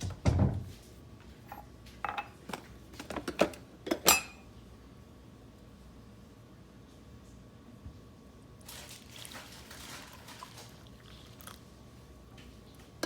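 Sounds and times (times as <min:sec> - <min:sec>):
dishes and cutlery clinking: 0:01.5 - 0:02.6, 0:03.9 - 0:04.4.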